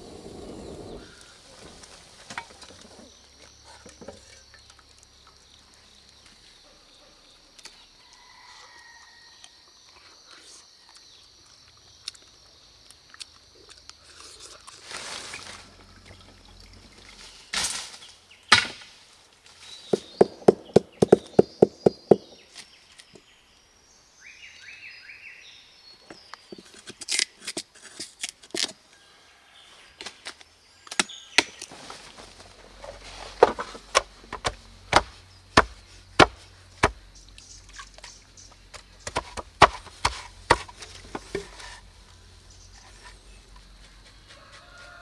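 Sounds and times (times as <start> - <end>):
bird calls: 19.8 - 22.5
wood being chopped: 20.0 - 22.4, 33.4 - 37.0, 38.7 - 41.5.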